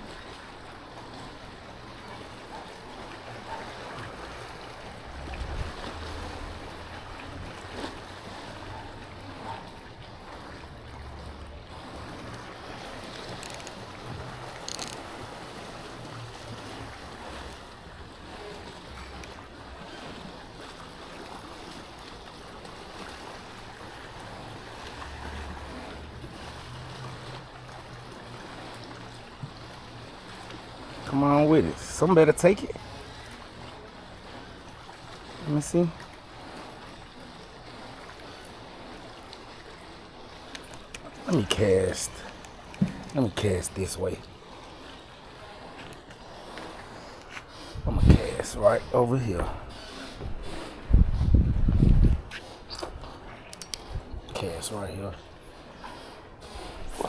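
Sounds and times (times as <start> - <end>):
lapping water: 0.0 - 51.2, 51.8 - 57.0
wind buffeting microphone: 5.1 - 6.6, 47.7 - 48.6, 50.2 - 52.4
sharp clicks: 13.3 - 13.8, 14.6 - 15.1, 53.6 - 53.8.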